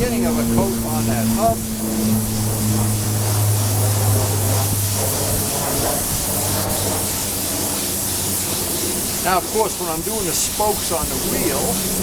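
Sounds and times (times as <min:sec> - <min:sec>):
low steady hum: 0:00.0 - 0:06.6
paint spray hissing: 0:02.3 - 0:12.0.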